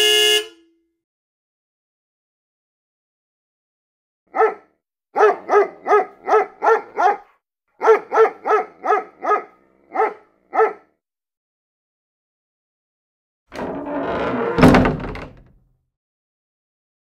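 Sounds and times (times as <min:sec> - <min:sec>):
dog barking: 0:04.3 - 0:11.0.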